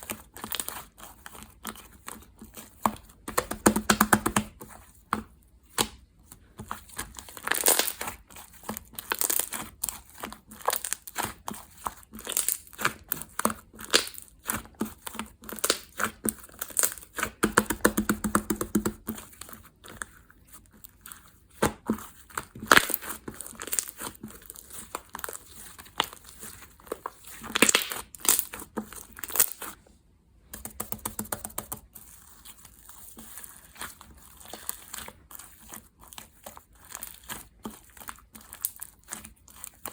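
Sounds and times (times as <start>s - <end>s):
slime popping and crackling: 7.3s - 8.1s, 8.9s - 11.4s, 12.1s - 19.1s, 22.4s - 29.7s.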